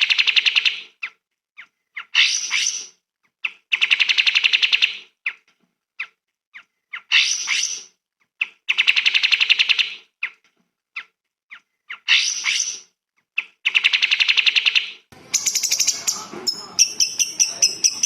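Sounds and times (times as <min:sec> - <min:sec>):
bird chips and trill: 0:13.7 - 0:18.0
higher bird calls: 0:15.2 - 0:18.0.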